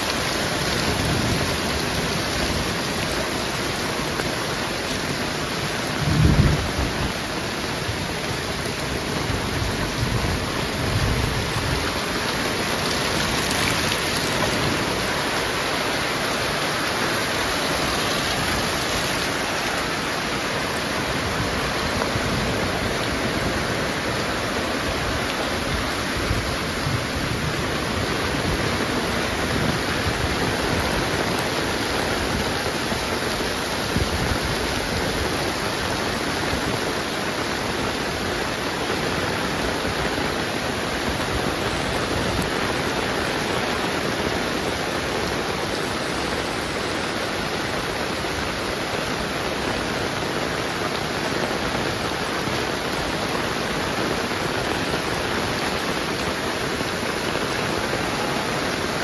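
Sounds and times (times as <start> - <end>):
heavy rain falling: 0.0 - 59.0
low thunder rumble: 5.9 - 7.1.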